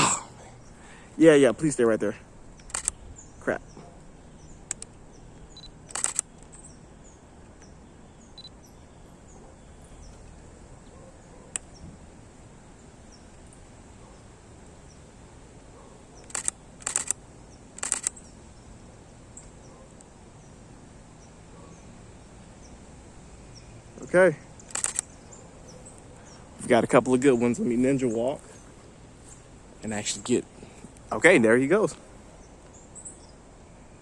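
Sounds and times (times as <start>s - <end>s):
camera shutter bursts: 2.6s - 3.0s, 5.5s - 6.7s, 16.2s - 18.3s, 24.6s - 25.2s.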